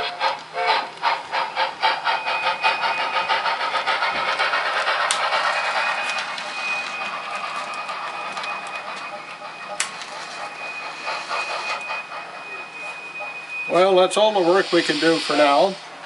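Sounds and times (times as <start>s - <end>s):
model steam locomotive chuffing: 0.0s - 16.0s.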